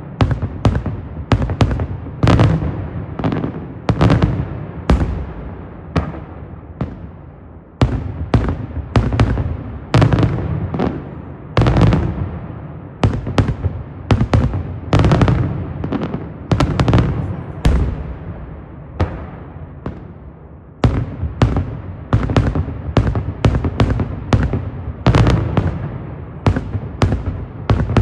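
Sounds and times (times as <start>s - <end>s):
fireworks bangs: 0.0s - 7.2s, 7.8s - 28.0s
echoing rumble: 16.6s - 20.4s.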